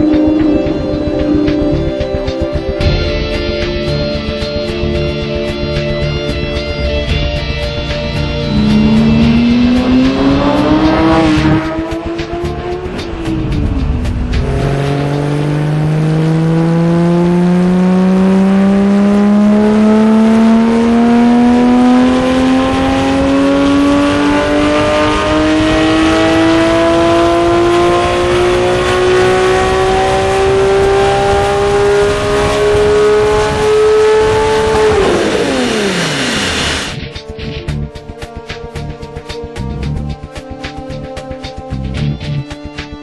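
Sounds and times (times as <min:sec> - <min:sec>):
sports car engine revving: 0:07.8 - 0:37.0.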